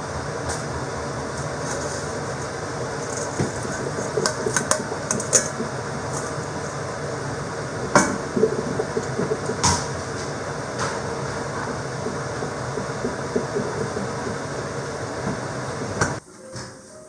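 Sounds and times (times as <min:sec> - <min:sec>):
steady rumbling: 0:00.0 - 0:16.2
sharp knocks and clicks: 0:08.0 - 0:14.5.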